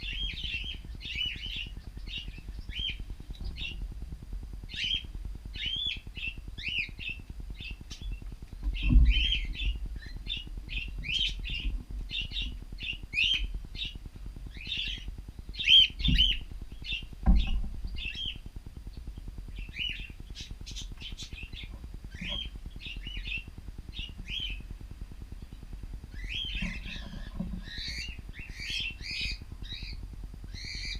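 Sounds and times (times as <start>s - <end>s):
low thumps: 0.0s - 14.5s, 15.9s - 19.6s
cockatiels chirping: 4.7s - 18.4s, 19.6s - 24.6s, 26.1s - 30.9s.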